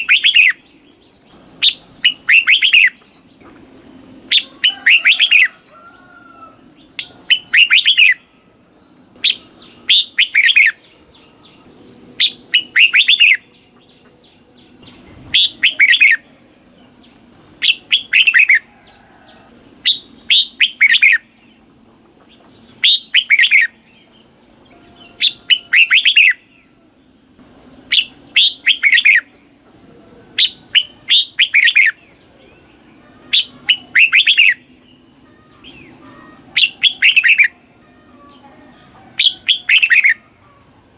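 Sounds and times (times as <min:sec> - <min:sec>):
bird singing whistled phrases: 0:00.0 - 0:00.9, 0:01.6 - 0:03.1, 0:07.0 - 0:08.3, 0:09.2 - 0:10.8, 0:12.2 - 0:13.5, 0:15.3 - 0:16.3, 0:17.6 - 0:18.6, 0:19.8 - 0:21.3, 0:22.8 - 0:23.8, 0:24.9 - 0:26.5, 0:27.9 - 0:29.3, 0:30.4 - 0:32.0, 0:33.2 - 0:34.7, 0:35.3 - 0:37.6, 0:39.2 - 0:40.2.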